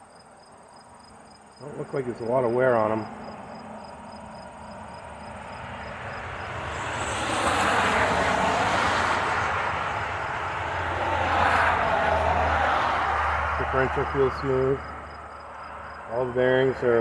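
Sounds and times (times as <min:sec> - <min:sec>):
crickets trilling: 0:00.0 - 0:17.0
distant engine rushing hum: 0:01.6 - 0:17.0.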